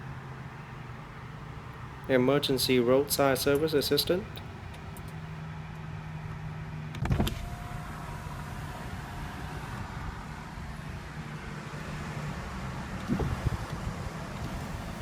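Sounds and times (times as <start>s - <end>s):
car cabin hum: 0.0s - 5.4s, 13.0s - 15.0s.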